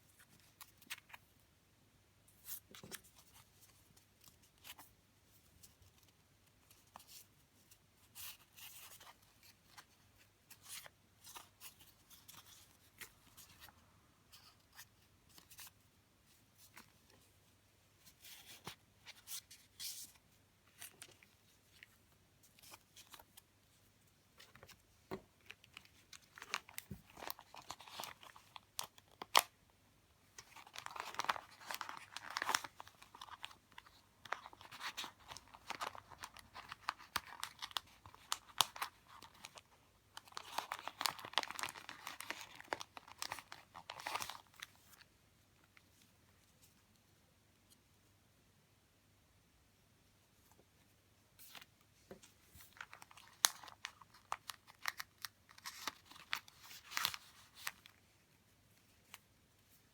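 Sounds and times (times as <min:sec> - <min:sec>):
paper and plastic crinkling: 0:25.4 - 0:29.5, 0:30.4 - 0:45.0, 0:52.5 - 0:58.0.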